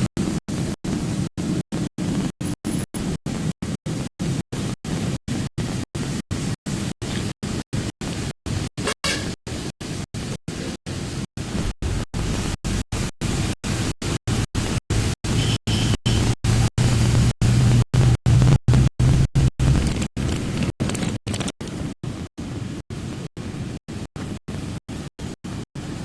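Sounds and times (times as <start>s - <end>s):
low rumble: 11.5s - 13.0s, 16.6s - 20.8s.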